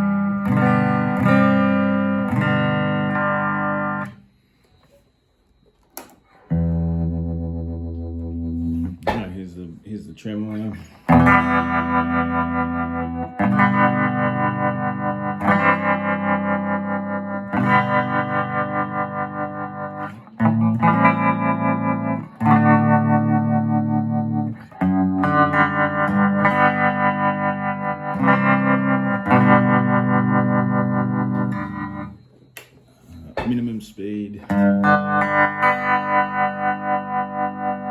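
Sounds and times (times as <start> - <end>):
electric guitar chords with tremolo: 0.0 - 4.2, 6.5 - 9.4, 10.5 - 32.3, 34.4 - 37.9.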